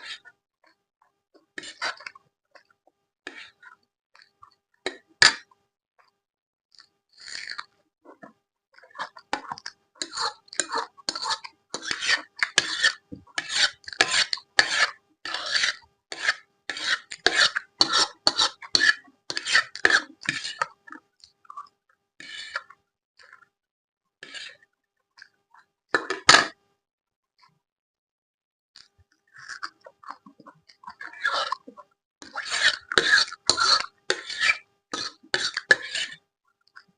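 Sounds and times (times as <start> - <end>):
close-miked rasping eating sounds: 1.4 - 5.5, 6.7 - 23.5, 28.8 - 36.9.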